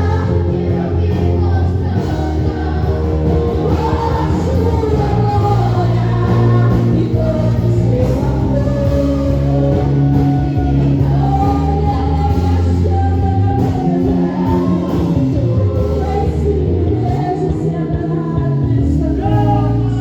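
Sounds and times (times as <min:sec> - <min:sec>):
person singing worship song: 0:00.0 - 0:20.0.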